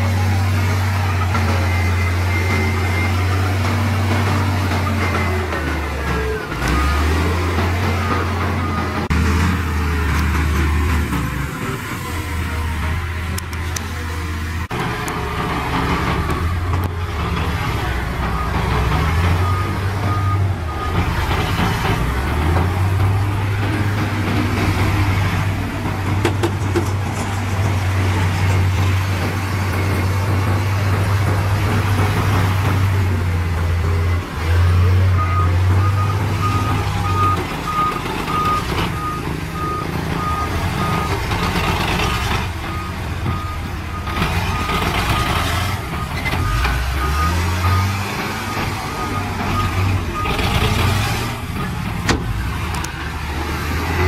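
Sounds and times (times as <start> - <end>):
diesel machinery engine running: 0.0 - 54.0
reversing alarm beeps: 0.1 - 9.1, 18.2 - 22.0, 35.1 - 50.7.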